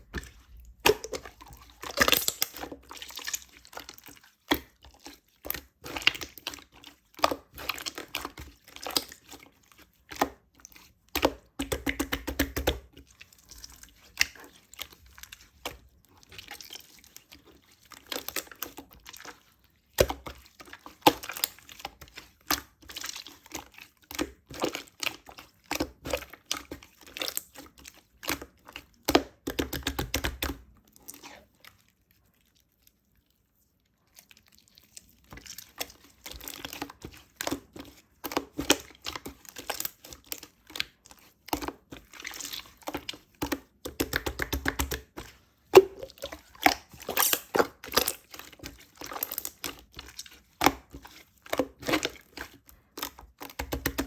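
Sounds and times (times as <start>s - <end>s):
sticky clicks pops and squishes: 2.0s - 2.6s.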